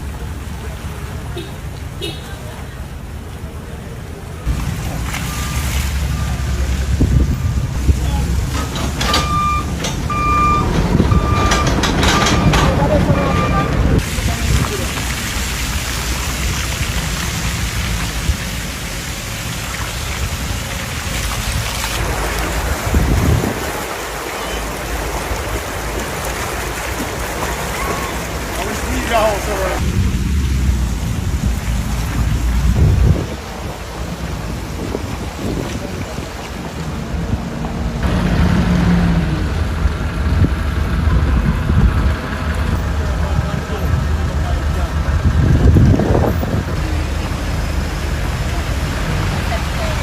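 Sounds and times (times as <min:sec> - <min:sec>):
low rumbling: 0:00.0 - 0:50.0
rain-like rushing noise: 0:00.0 - 0:50.0
wind on microphone: 0:06.5 - 0:08.6, 0:19.9 - 0:24.1, 0:29.8 - 0:37.8, 0:40.1 - 0:44.3, 0:45.0 - 0:47.4.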